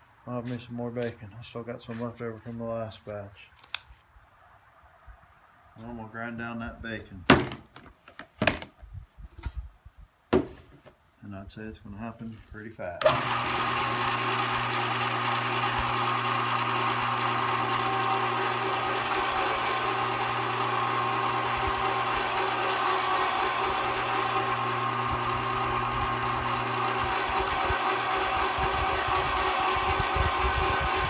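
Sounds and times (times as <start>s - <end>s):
electric meat grinder running: 13.0s - 31.0s.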